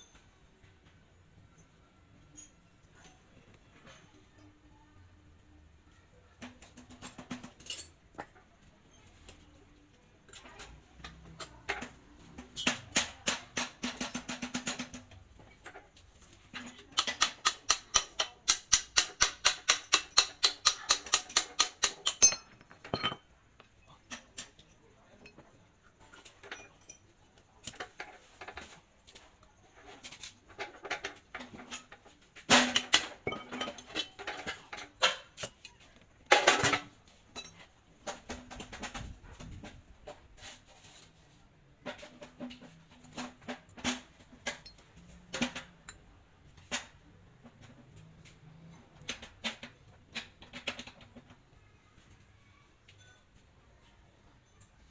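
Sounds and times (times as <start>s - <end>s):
metal tools tapping on metal: 6.4s - 8.5s, 10.3s - 28.8s, 29.8s - 38.2s, 42.3s - 46.2s.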